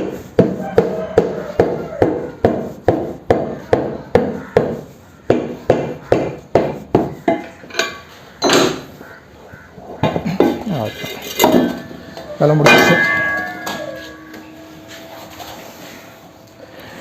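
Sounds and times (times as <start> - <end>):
hammer striking metal: 12.6 - 15.0.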